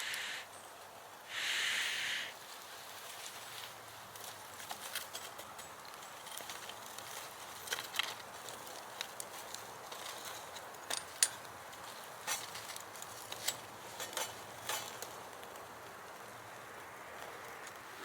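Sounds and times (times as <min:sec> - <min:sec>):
faint steady hiss: 0:00.0 - 0:18.0
sharp clicks and light knocks: 0:04.1 - 0:17.9.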